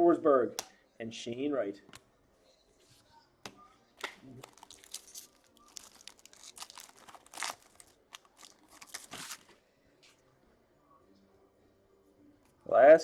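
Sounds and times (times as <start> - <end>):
card pack wrapper crinkling and tearing: 4.4 - 9.5.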